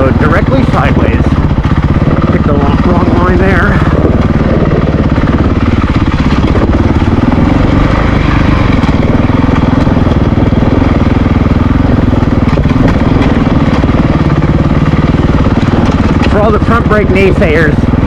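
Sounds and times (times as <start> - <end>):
motorcycle engine running at low revs: 0.0 - 18.0.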